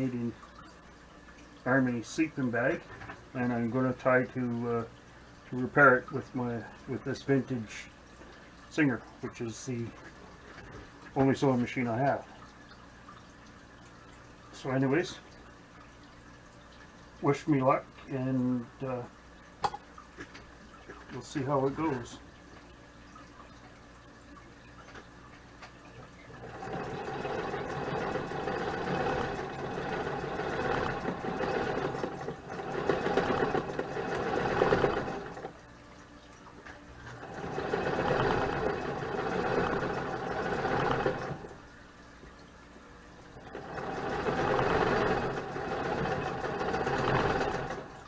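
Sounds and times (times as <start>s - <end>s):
sewing machine stitching: 26.4s - 35.6s, 37.0s - 41.6s, 43.4s - 48.0s.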